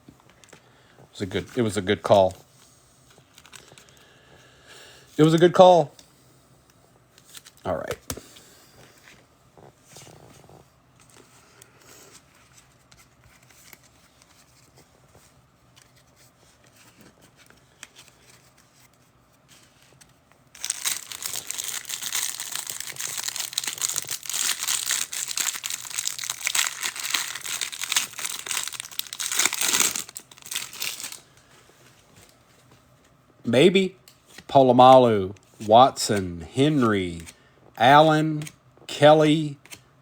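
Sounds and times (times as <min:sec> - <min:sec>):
wrapper crinkling and tearing: 0:20.6 - 0:31.3.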